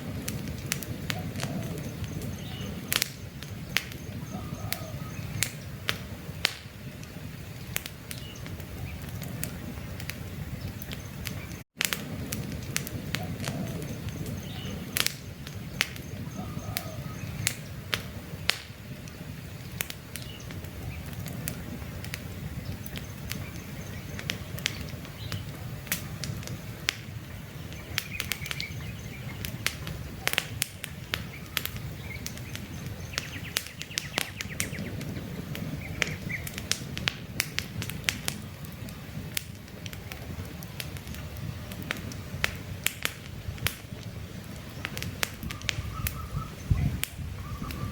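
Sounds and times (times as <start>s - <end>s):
campfire crackling and popping: 0.0s - 47.9s
faint bird chirps: 1.1s - 5.8s, 13.2s - 15.0s, 15.6s - 17.8s, 31.2s - 35.0s, 44.8s - 47.9s.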